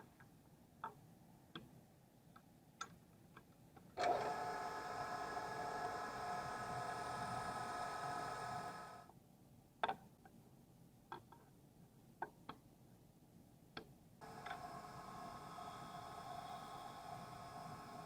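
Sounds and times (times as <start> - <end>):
machine tool whine: 4.0 - 9.0, 14.2 - 18.0.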